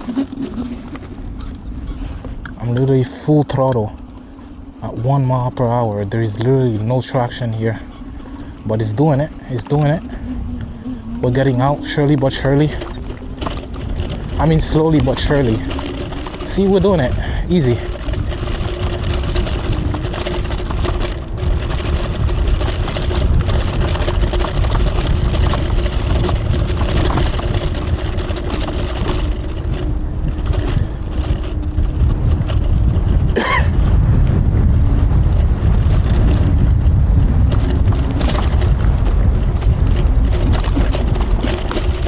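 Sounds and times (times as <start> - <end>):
faint electric motor whine: 0.0 - 33.2
tyres over rough ground: 0.0 - 42.0
wind on microphone: 0.0 - 42.0.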